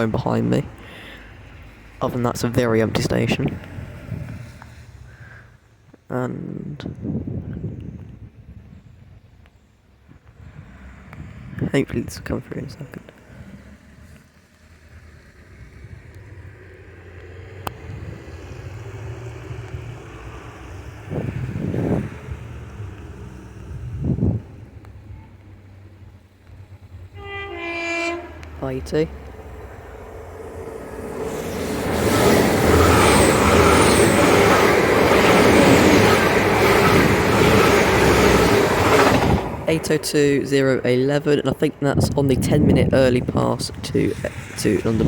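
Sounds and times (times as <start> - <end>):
train rumbling hum: 10.1 - 45.0
low buffeting bursts: 15.6 - 45.0.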